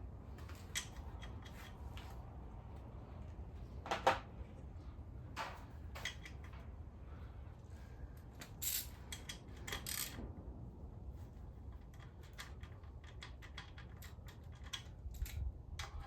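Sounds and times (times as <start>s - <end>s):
steady low hum: 0.0s - 13.0s
hand tools clicking and scraping: 11.7s - 16.0s.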